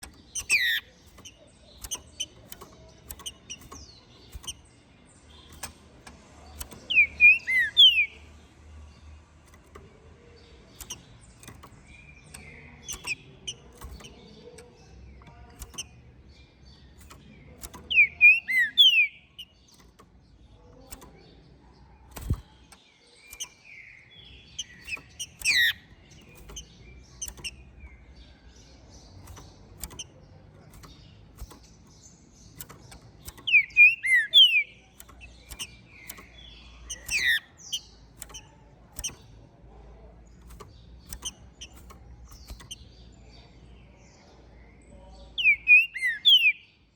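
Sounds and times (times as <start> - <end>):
faint clicks: 0.0 - 43.9
soft bird calls: 0.0 - 46.9
bird singing whistled phrases: 6.9 - 8.2, 17.9 - 19.2, 33.5 - 34.7, 45.4 - 46.6.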